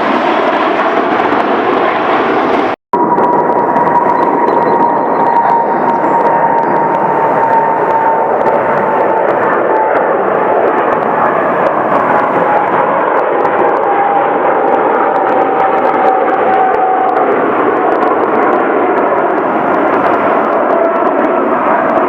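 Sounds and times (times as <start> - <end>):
jet engine roar with whine: 0.0 - 22.0.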